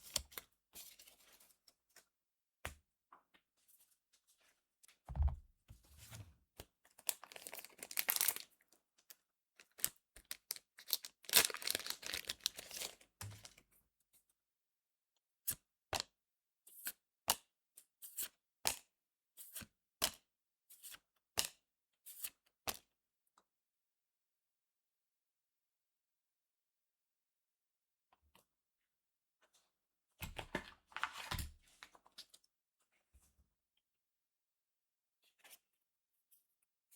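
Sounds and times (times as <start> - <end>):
foil pack tearing and crinkling: 7.2 - 8.4, 10.2 - 13.0.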